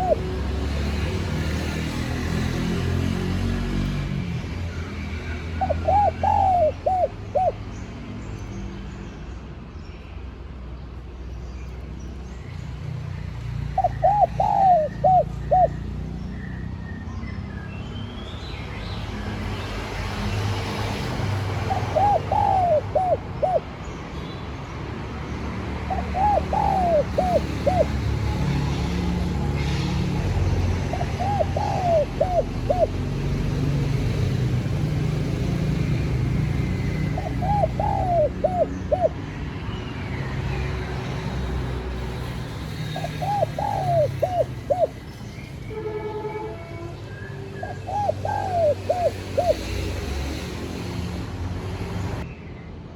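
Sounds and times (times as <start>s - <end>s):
dove cooing: 0.0s - 0.4s, 5.6s - 7.6s, 13.8s - 15.9s, 21.3s - 23.8s, 25.9s - 34.0s, 36.5s - 39.2s, 42.9s - 45.0s, 47.6s - 49.8s.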